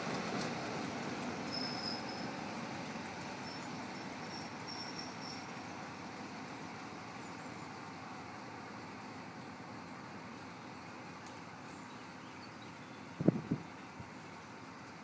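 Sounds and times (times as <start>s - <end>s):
wheels squealing: 0.0s - 6.0s
diesel train rumbling away: 0.0s - 15.0s.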